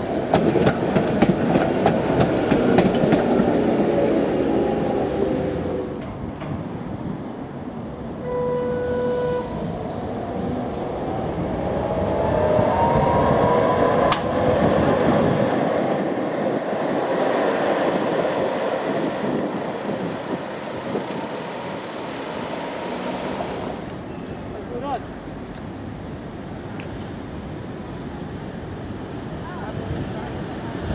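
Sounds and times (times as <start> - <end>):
short beep: 8.2 - 9.5
sharp click: 14.1 - 14.3.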